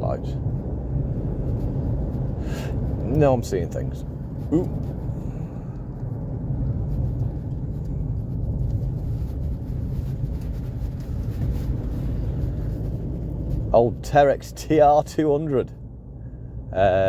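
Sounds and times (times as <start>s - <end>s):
engine and road noise: 0.0s - 17.0s.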